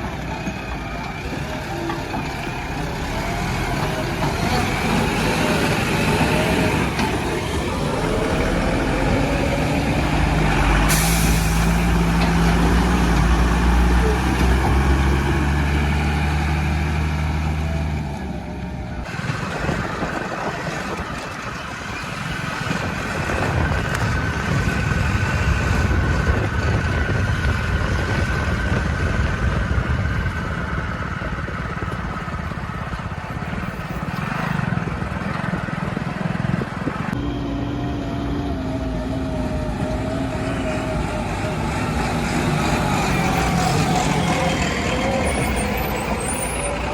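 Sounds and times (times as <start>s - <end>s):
heavy diesel engines running: 0.0s - 46.9s.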